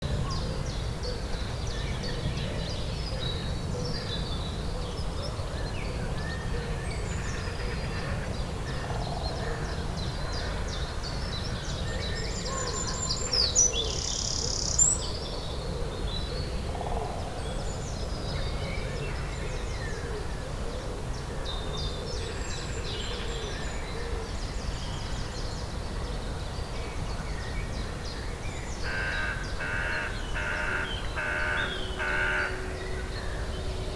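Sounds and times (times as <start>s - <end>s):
songbirds chirping and trilling: 0.0s - 33.9s
loud high bird call: 28.8s - 33.8s.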